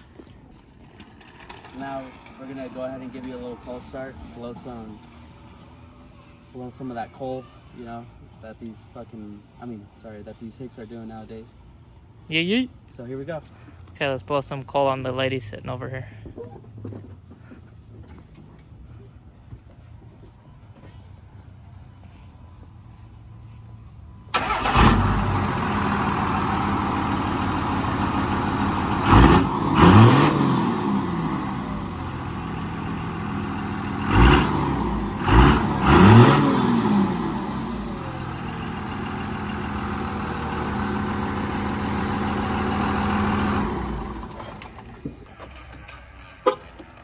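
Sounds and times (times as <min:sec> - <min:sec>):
diesel truck engine revving: 0:24.3 - 0:45.0.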